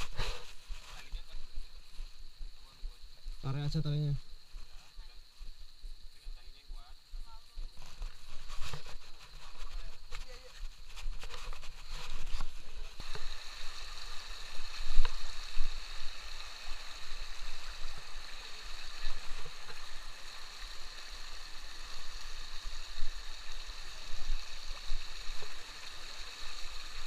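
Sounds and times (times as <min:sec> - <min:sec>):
water rushing over rocks: 0:12.8 - 0:27.0.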